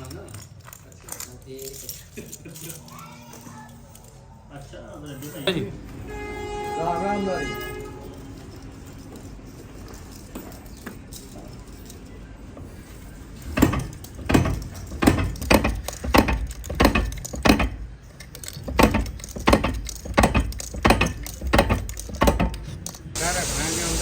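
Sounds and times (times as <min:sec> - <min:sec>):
metal-on-metal clanks: 0:13.3 - 0:23.0.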